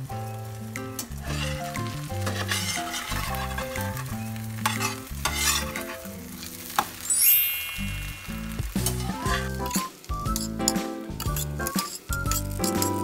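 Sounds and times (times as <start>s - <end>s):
bread and egg sizzling in oil: 0.0s - 13.0s
metal spatula scraping a pan: 1.2s - 6.6s, 8.3s - 13.0s
background music with bass line: 8.0s - 13.0s.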